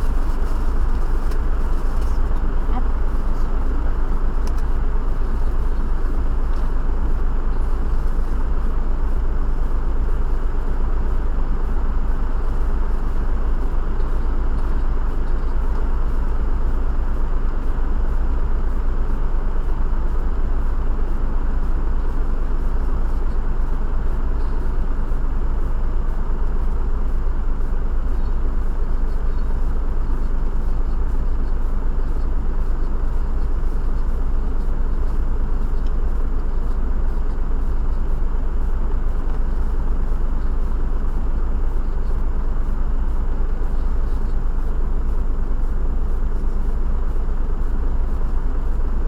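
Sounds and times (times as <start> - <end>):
car interior road rumble: 0.0 - 9.7.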